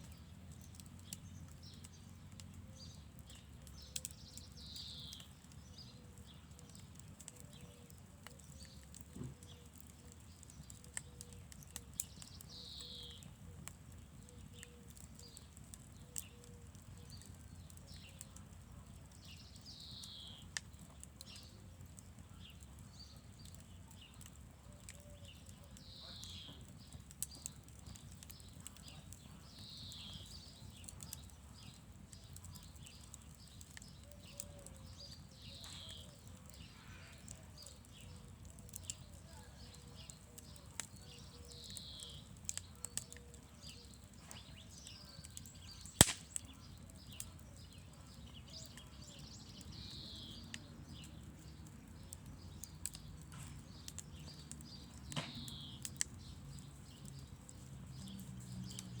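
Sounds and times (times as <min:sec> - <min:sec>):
campfire crackling: 0:00.0 - 0:59.0
wood snapping: 0:45.5 - 0:46.6, 0:52.0 - 0:56.3.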